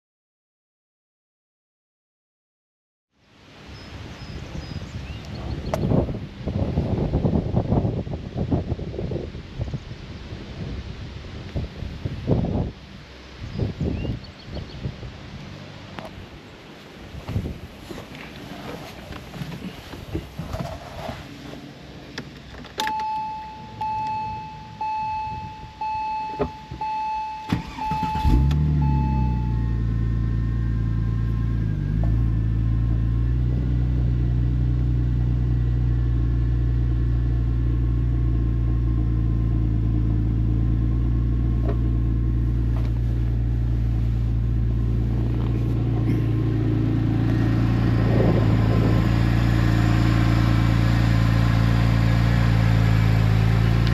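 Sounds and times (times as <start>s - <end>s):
car engine starting and idling: 14.1s - 53.9s
dashboard warning chime beeping: 22.8s - 30.6s.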